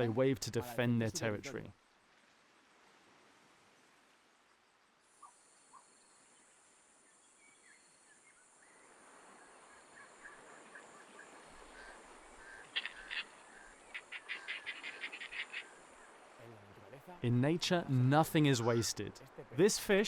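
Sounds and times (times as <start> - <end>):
birds chirping: 7.4 - 17.2
loud harsh bird calls: 11.8 - 15.8.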